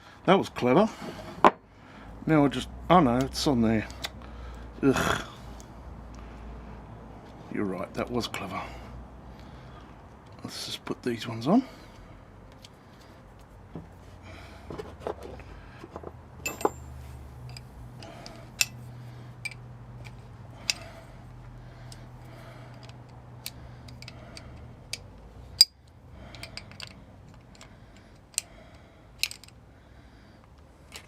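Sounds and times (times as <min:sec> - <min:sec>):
small metal parts clinking: 0:16.4 - 0:21.0, 0:21.9 - 0:28.5, 0:29.2 - 0:29.6
spanner clicking: 0:17.5 - 0:18.8, 0:22.7 - 0:28.5, 0:29.2 - 0:29.6.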